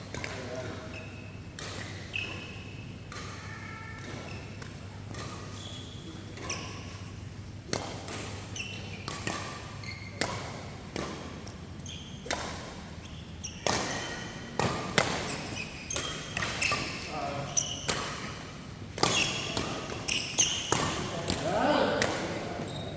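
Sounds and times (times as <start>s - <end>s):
low hum in large hall: 0.0s - 22.9s
rackets hitting shuttlecock: 1.5s - 3.4s, 4.0s - 5.6s, 7.6s - 11.6s, 12.2s - 22.9s.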